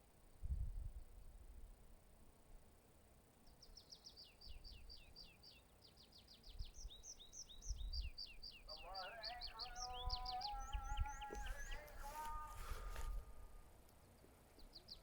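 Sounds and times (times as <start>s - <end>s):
small songbird singing: 3.4s - 15.0s.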